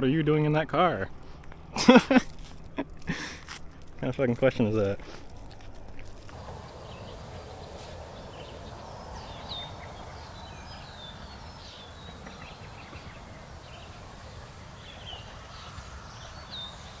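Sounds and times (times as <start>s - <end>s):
low outdoor rumble: 0.0s - 17.0s
small birds chirping: 6.3s - 17.0s.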